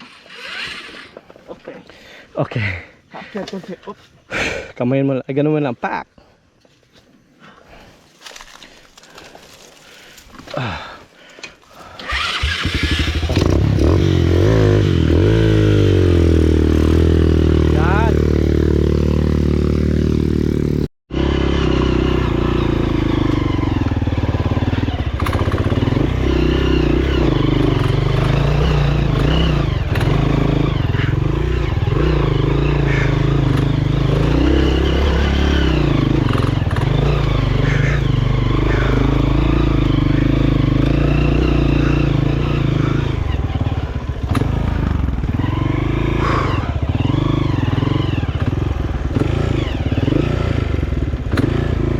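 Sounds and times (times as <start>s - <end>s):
motorcycle engine revving: 0.0s - 1.3s, 12.0s - 51.9s.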